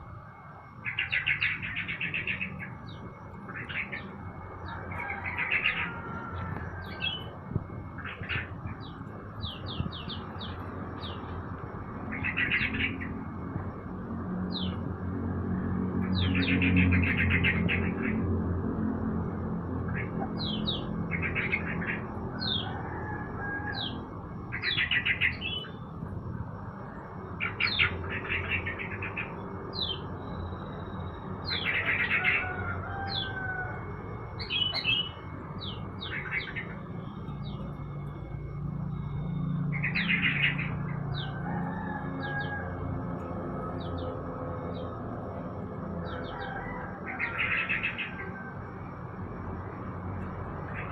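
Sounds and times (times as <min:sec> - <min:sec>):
songbirds trilling and whistling: 0:00.0 - 0:50.9.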